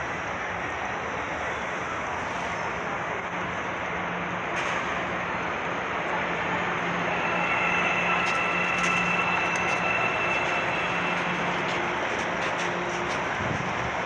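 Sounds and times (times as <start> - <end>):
metro train running: 0.0 - 14.0
high steady whine: 5.4 - 14.0.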